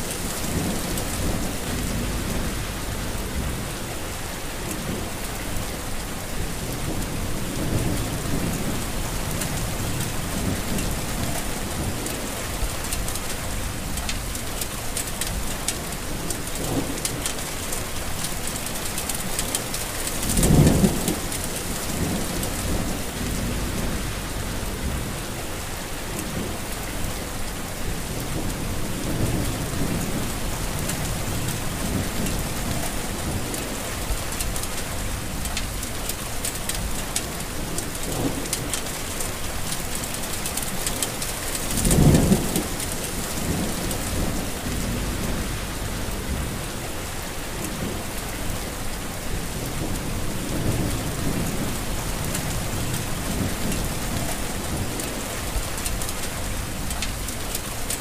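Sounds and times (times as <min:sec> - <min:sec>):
heavy rain: 0:00.0 - 0:58.0
low rumbles: 0:00.2 - 0:04.2, 0:21.7 - 0:25.6, 0:41.8 - 0:48.0.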